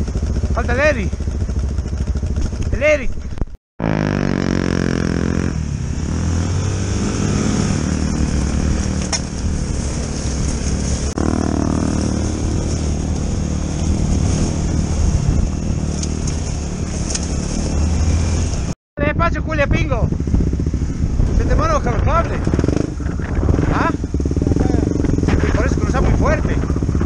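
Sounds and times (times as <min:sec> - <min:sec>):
motorcycle engine running: 0:00.0 - 0:27.0
gravel under tyres: 0:07.0 - 0:18.8.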